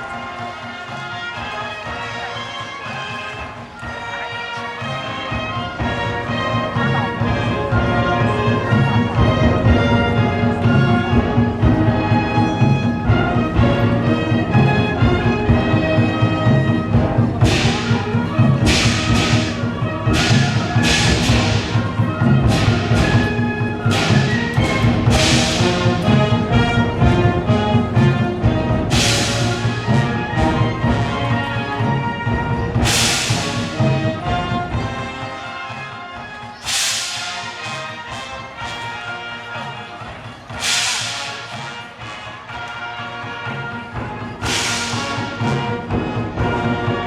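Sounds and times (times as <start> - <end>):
wind band playing: 0.0 - 47.0
cymbal crashes: 17.3 - 26.6, 28.9 - 30.4, 32.8 - 34.3, 36.6 - 38.8, 40.5 - 42.1, 44.4 - 45.9.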